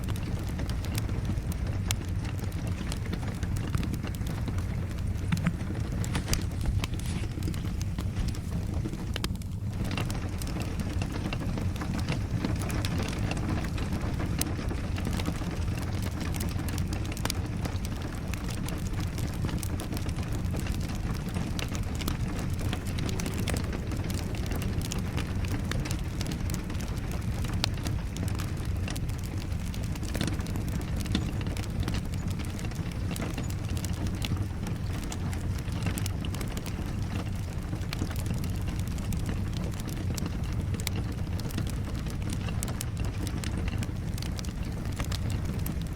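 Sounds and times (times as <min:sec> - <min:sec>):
rain: 0:00.0 - 0:45.9
wood fire crackling: 0:00.0 - 0:45.9.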